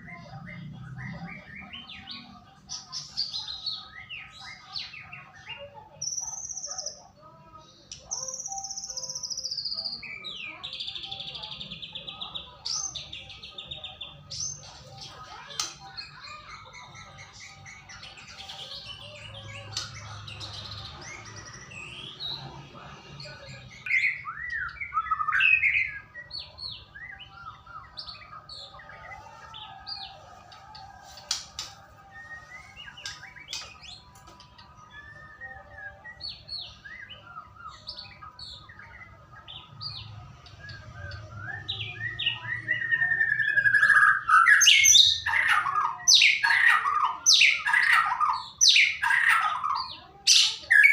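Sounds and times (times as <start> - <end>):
bird singing whistles and chirps: 23.8 - 29.2, 31.2 - 38.9, 39.5 - 50.9.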